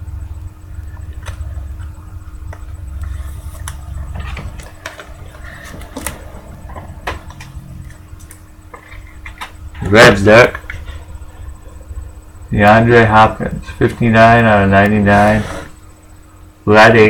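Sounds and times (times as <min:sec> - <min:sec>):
cards rustling: 0:01.0 - 0:11.2.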